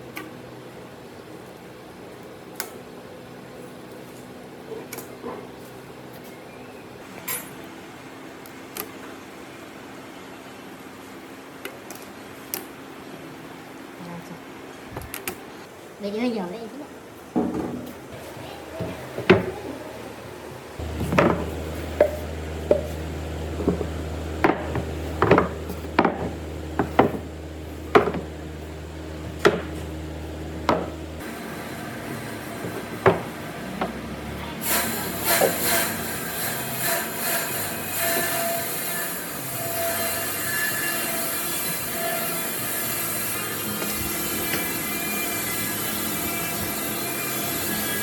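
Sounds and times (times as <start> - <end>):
low steady hum: 15.5 - 33.3
sharp knocks on wood: 23.6 - 27.3, 27.9 - 28.3, 29.4 - 29.8.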